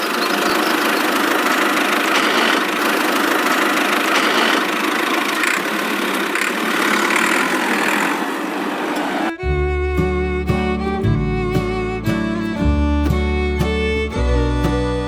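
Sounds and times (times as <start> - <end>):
small motor rattling buzz: 0.0 - 8.5.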